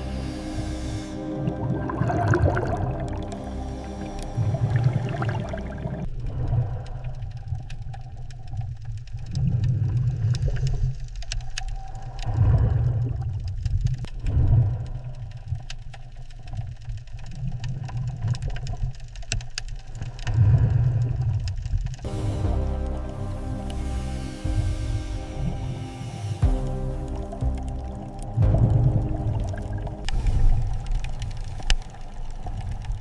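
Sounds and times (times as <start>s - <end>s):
faint clicks: 6.1s - 22.1s, 30.0s - 33.0s.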